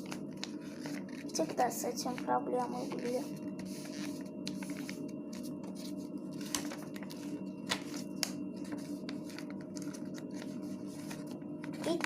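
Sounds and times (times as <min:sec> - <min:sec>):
paper being handled and folded: 0:00.0 - 0:12.0
sharp paper crinkles: 0:00.0 - 0:12.0
steady low hum: 0:00.0 - 0:12.0.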